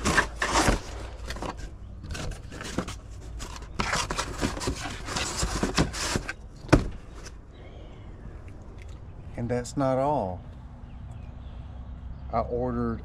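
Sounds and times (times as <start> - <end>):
packaging scraping and rubbing: 0.0 - 7.4.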